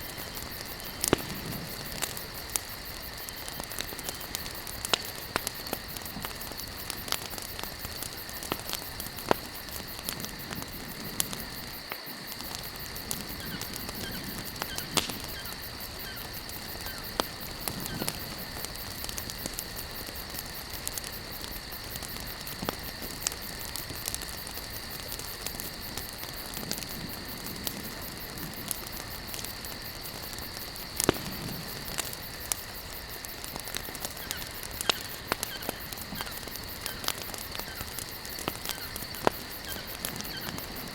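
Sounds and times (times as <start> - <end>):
campfire crackling: 0.0 - 40.9.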